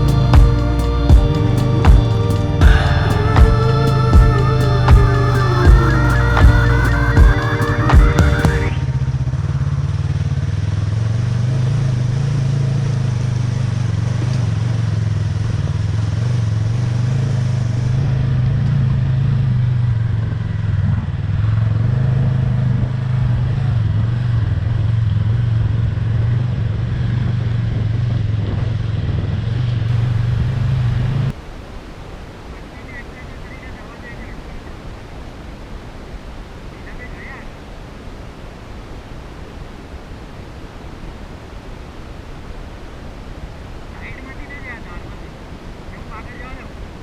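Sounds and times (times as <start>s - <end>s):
motorcycle engine running: 0.0s - 31.3s
wind and road noise: 0.0s - 47.0s.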